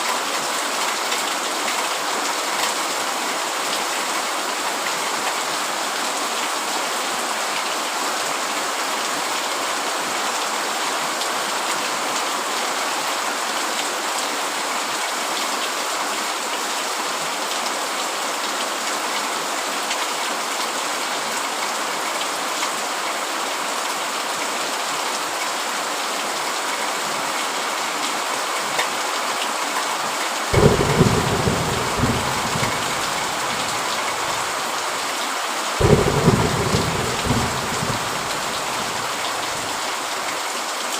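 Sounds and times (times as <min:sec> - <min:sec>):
heavy rain drumming on tent: 0:00.0 - 0:40.9
thunder rumbling: 0:30.6 - 0:34.7, 0:35.8 - 0:39.8.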